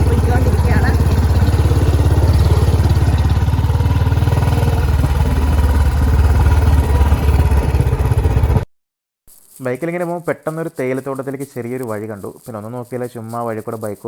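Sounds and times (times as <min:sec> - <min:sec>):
motorcycle engine thumping: 0:00.0 - 0:08.7.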